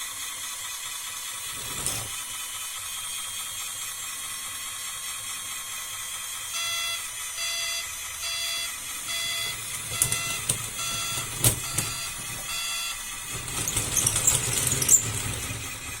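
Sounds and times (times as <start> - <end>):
toy gears and tracks clattering: 0.0 - 16.0
reverse alarm beeping: 6.5 - 13.1.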